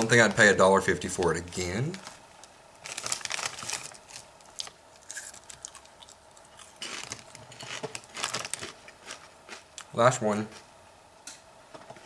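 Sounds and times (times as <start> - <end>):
potato chips crunching: 2.8 - 10.6.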